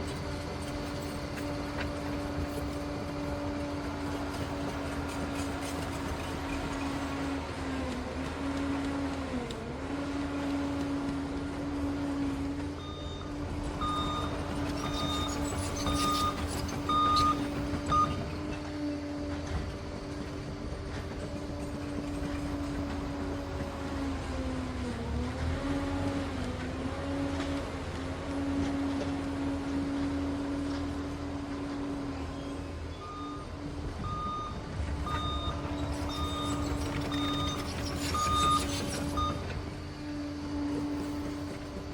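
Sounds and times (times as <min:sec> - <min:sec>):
dozer diesel engine under load: 0:00.0 - 0:41.9
reversing alarm beeps: 0:12.8 - 0:18.4, 0:32.9 - 0:39.6.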